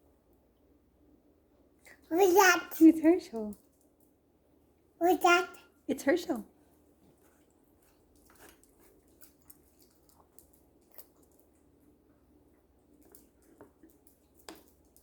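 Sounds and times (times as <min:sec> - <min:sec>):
baby chewing: 0:07.4 - 0:12.0.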